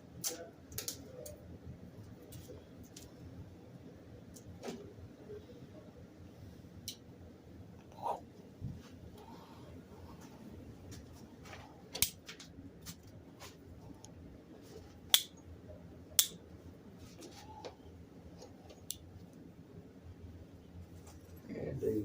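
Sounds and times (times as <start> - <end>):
sharp clicks and snips: 0.2 - 1.4, 15.1 - 15.4, 16.2 - 16.4.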